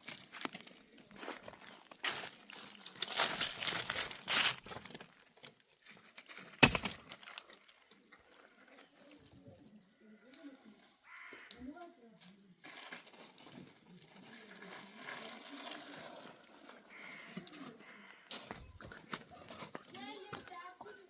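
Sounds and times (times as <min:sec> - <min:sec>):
rustling crinkling handling noise: 0:00.0 - 0:09.3.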